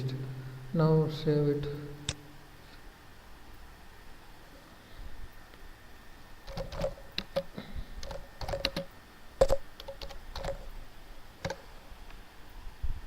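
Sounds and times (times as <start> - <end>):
typing on computer keyboard: 6.4 - 10.7.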